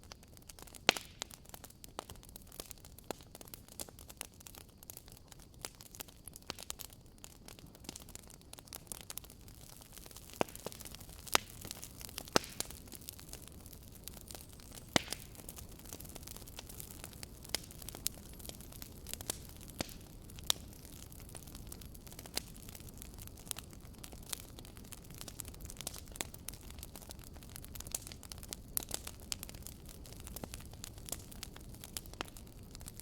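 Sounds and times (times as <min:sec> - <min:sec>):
campfire crackling and popping: 0:00.0 - 0:33.0.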